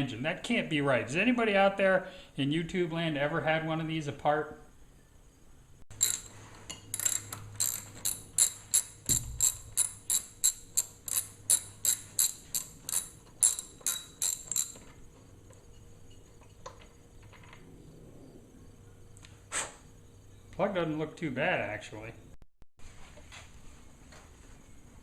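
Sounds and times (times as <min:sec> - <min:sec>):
ratchet wrench clicking: 0:05.9 - 0:14.9.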